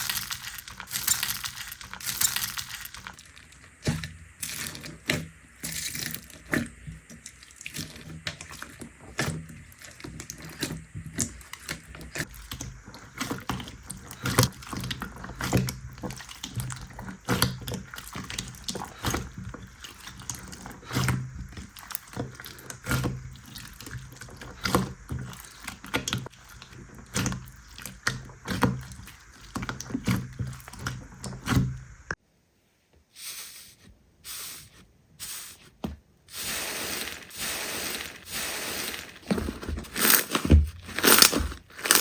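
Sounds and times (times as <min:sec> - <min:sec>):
slime squished by hand: 0:07.3 - 0:31.7.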